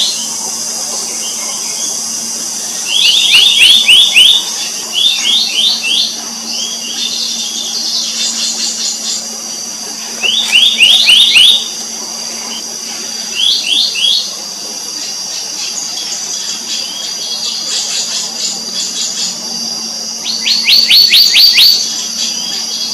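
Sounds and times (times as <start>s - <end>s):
high-pitched background drone: 0.0s - 22.9s
bird whistling calls: 2.7s - 9.2s, 10.2s - 11.7s, 20.2s - 22.9s.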